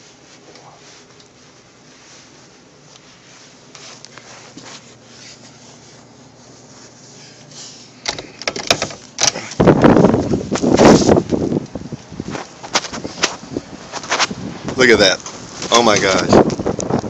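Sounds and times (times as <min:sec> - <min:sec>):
rustling and handling: 0:00.0 - 0:16.7
door opening: 0:08.0 - 0:09.6
wind gusting on microphone: 0:09.6 - 0:17.0.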